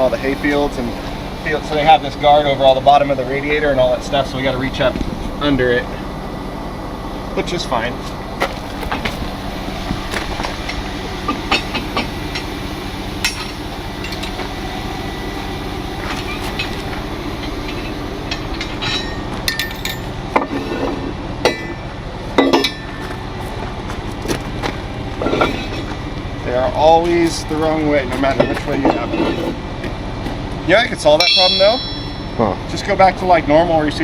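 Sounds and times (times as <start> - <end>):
truck engine running: 0.0 - 31.2
metal tow gear clanking: 8.4 - 21.8, 24.2 - 29.6.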